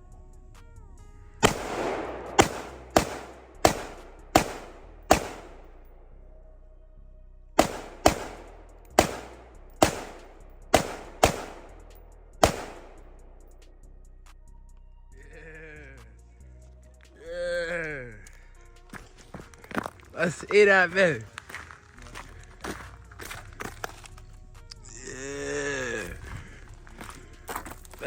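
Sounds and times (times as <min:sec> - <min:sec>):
single gunshots: 0:01.4 - 0:06.0, 0:07.6 - 0:13.5.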